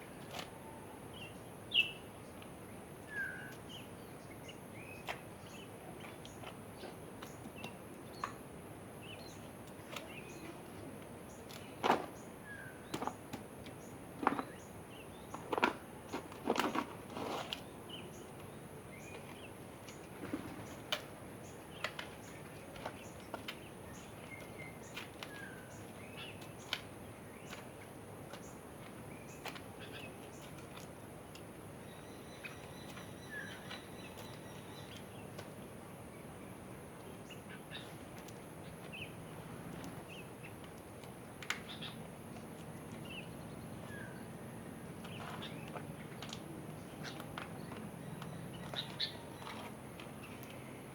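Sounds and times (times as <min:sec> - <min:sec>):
birds chirping and calling: 0:31.8 - 0:35.4, 0:41.5 - 0:50.9.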